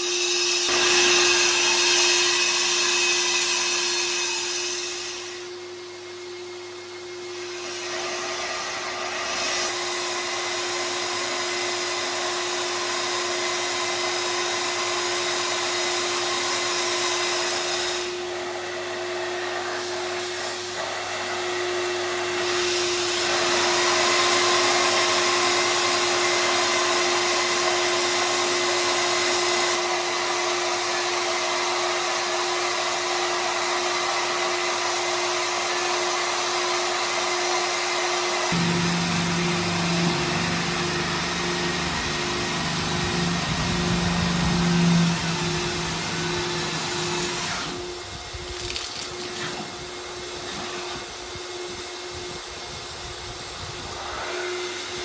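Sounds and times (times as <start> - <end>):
whirring machine hum: 38.5 - 48.6.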